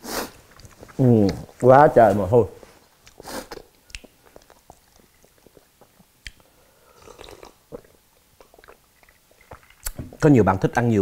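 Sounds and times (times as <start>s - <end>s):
person chewing soup: 0.1s - 1.8s, 2.8s - 10.0s
sip and swallow: 3.1s - 10.0s.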